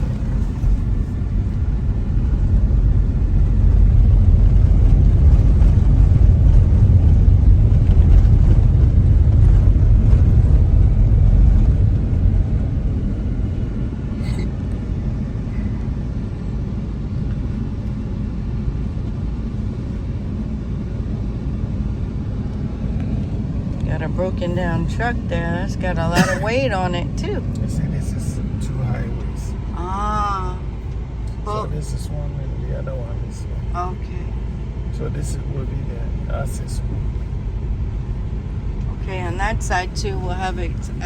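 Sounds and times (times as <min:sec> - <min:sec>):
car road rumble from inside: 0:00.0 - 0:41.0.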